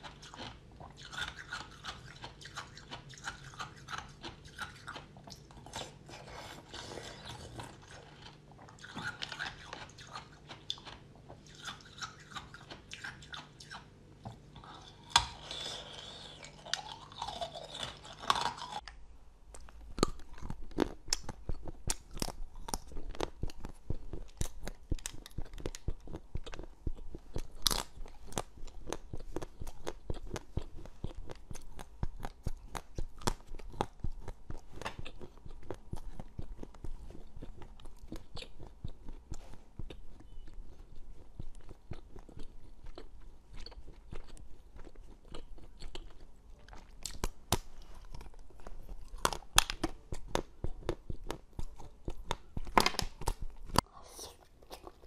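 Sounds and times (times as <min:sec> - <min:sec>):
crunching frozen candies: 0:14.6 - 0:19.0, 0:41.6 - 0:55.0.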